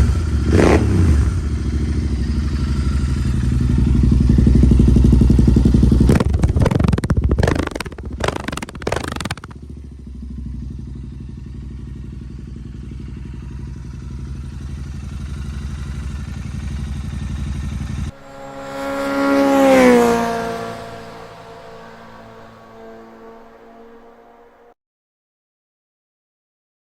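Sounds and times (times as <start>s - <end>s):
motorcycle engine revving and idling: 0.0s - 24.7s
exhaust crackling and popping: 5.2s - 9.7s.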